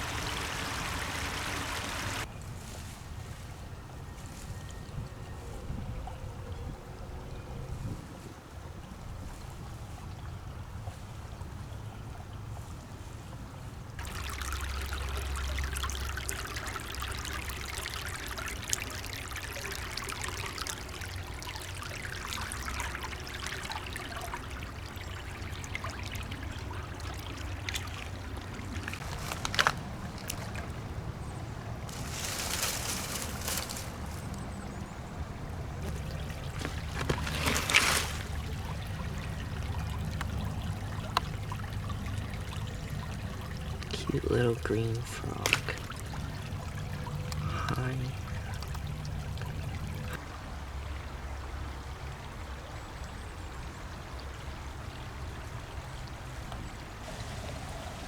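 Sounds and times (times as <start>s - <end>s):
stream trickling: 0.0s - 58.0s.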